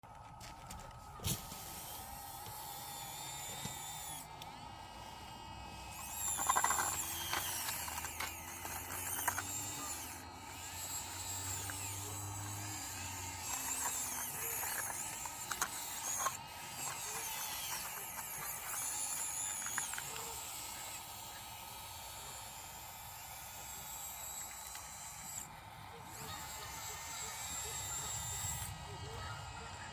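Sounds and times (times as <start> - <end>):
toy excavator motors whining: 0.0 - 29.9
gravel clicks and scrapes: 6.0 - 20.3.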